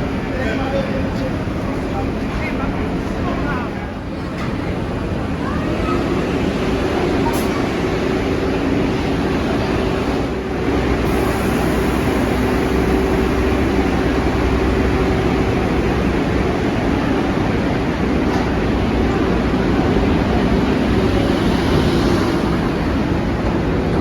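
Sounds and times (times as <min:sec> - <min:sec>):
subway train wheels rumbling on rail: 0:00.0 - 0:24.0.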